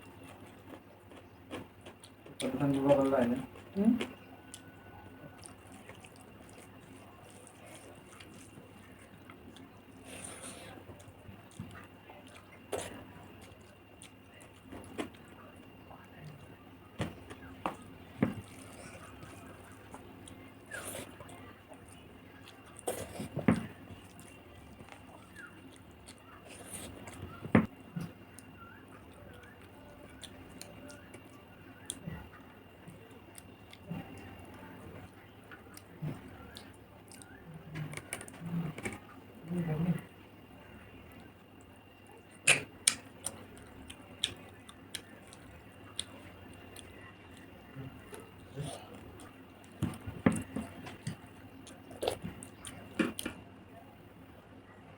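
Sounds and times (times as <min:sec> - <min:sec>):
chewing and mouth sounds: 0:00.0 - 0:53.4
eating clicks and smacks: 0:41.1 - 0:53.4.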